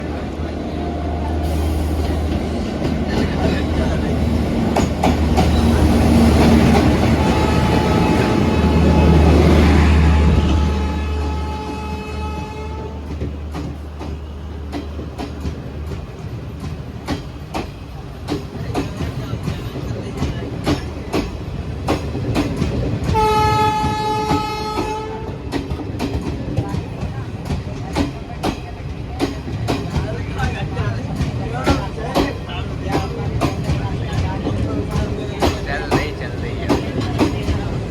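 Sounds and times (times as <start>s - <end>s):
train wheels rumbling on rails: 0.0s - 37.9s
locomotive horn: 7.0s - 13.2s, 23.1s - 25.4s.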